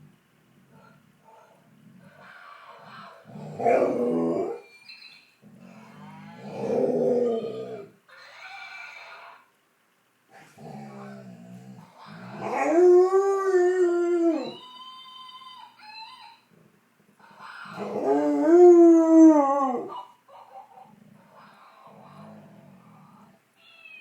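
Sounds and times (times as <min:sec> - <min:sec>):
dog howling: 0:03.3 - 0:04.7, 0:06.3 - 0:07.9, 0:12.1 - 0:14.6, 0:17.6 - 0:20.1
animal-sound toy: 0:14.6 - 0:16.5, 0:23.6 - 0:24.0.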